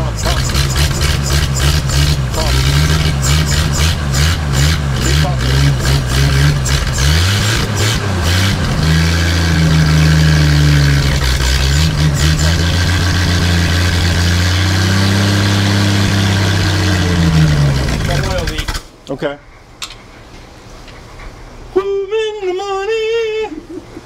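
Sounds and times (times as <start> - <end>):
unmuffled car engine running: 0.0 - 18.8.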